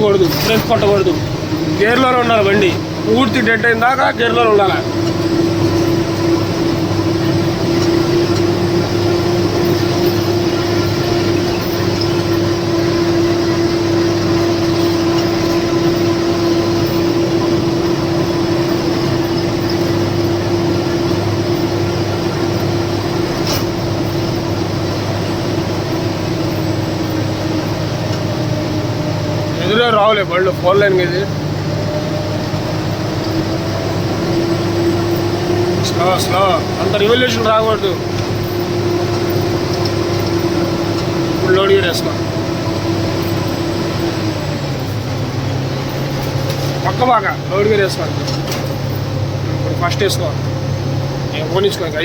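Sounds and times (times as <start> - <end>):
steady whine: 0.0 - 52.0
truck diesel engine droning: 0.0 - 52.0.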